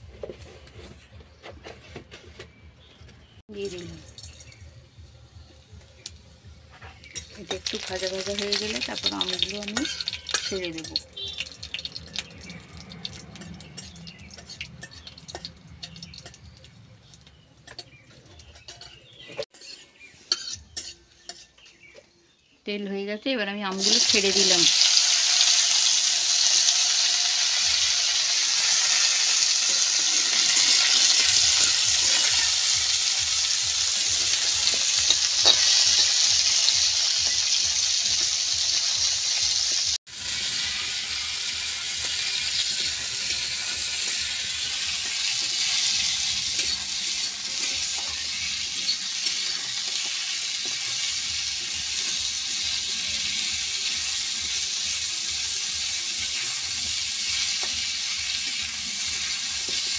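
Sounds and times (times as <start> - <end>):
food sizzling in hot oil: 5.5 - 21.5, 23.7 - 59.9
metal spatula scraping pan: 9.0 - 12.3, 13.2 - 16.4, 17.6 - 21.9, 28.7 - 32.8, 33.9 - 36.6, 42.0 - 50.8.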